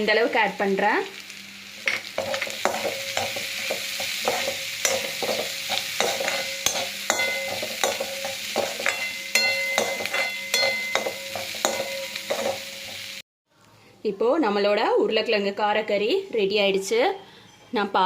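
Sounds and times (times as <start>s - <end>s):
light sizzle of frying: 0.0s - 13.2s
spatula knocking and scraping pan: 1.8s - 13.1s.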